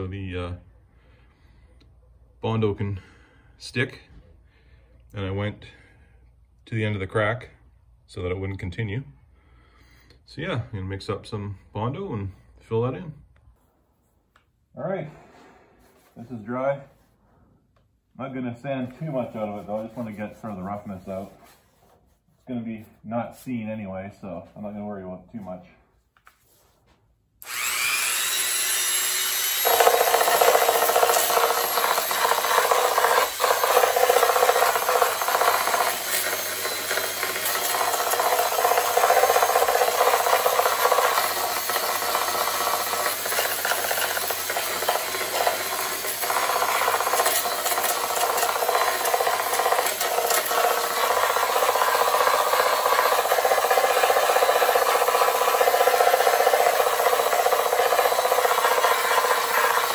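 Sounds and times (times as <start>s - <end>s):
rough rubbing of sanding filler: 19.3s - 22.2s
electric sander whining and sanding: 27.4s - 59.9s.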